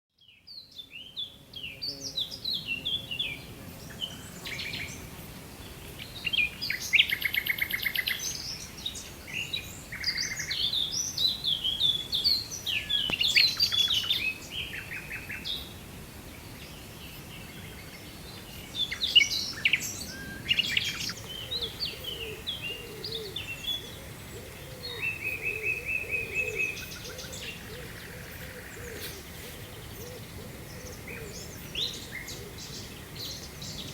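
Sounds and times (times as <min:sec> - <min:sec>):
songbirds singing: 0:00.1 - 0:33.9
background hiss: 0:00.2 - 0:33.9
low repeated bird call: 0:20.2 - 0:33.9.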